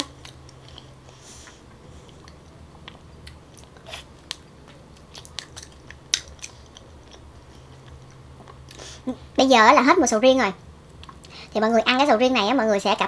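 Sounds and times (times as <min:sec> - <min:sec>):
wet chewing: 0:00.0 - 0:08.8.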